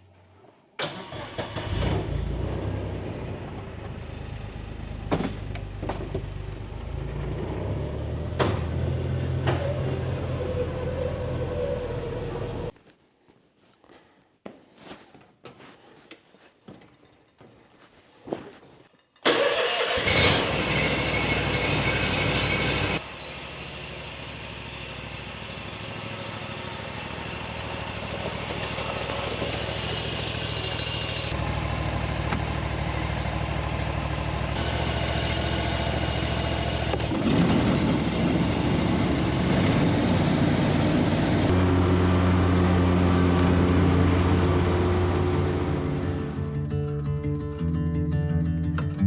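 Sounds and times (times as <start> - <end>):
mower engine running: 19.6 - 39.5, 40.8 - 47.5.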